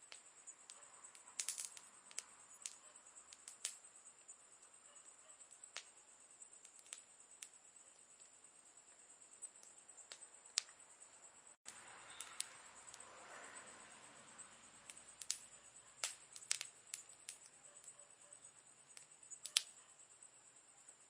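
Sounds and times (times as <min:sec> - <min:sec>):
campfire crackling and popping: 0:00.0 - 0:08.5, 0:09.4 - 0:10.8, 0:11.6 - 0:13.0, 0:14.8 - 0:18.0, 0:18.8 - 0:19.8
soft hiss of burning: 0:00.0 - 0:21.0.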